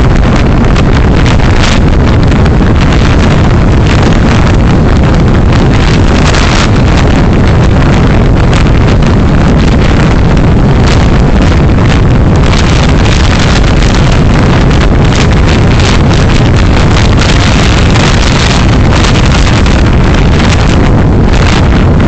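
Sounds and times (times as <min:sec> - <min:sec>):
car road and wind noise: 0:00.0 - 0:22.0
wind buffeting microphone: 0:00.0 - 0:22.0.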